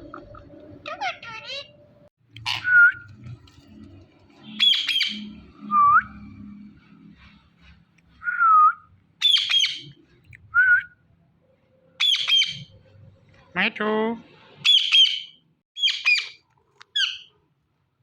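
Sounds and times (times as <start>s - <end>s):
parrot squawking: 0.8s - 1.8s, 2.4s - 2.8s, 4.6s - 5.3s, 9.2s - 10.0s, 12.0s - 12.7s, 14.6s - 17.3s
parrot whistling: 12.0s - 12.7s.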